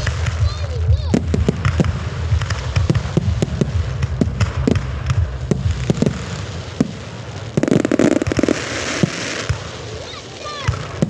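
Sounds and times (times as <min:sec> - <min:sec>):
low rumble: 0:00.0 - 0:08.5
firework bangs: 0:00.0 - 0:11.0
firework crackling: 0:00.0 - 0:11.0.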